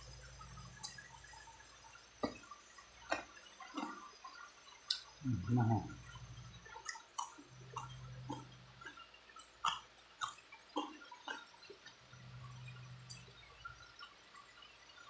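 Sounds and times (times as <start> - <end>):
mouth smacks and clicks: 2.2 - 4.1, 4.9 - 5.1, 6.6 - 12.0
person chewing: 3.0 - 4.1, 6.7 - 12.0.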